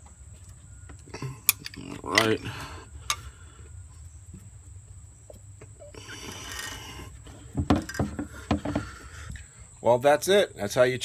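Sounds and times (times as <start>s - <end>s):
tools rustling: 1.4s - 3.3s, 7.5s - 8.9s.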